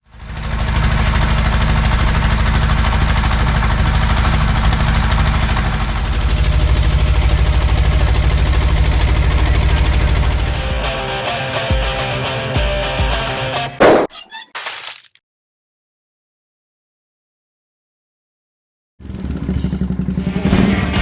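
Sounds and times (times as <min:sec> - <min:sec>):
motorcycle engine idling: 0:00.0 - 0:11.1, 0:19.0 - 0:20.3.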